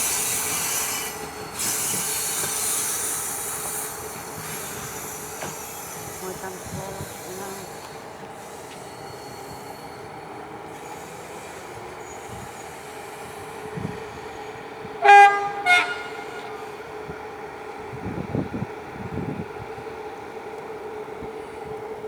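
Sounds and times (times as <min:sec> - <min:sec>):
train humming: 0:00.0 - 0:22.0
locomotive horn blasts: 0:15.0 - 0:16.7.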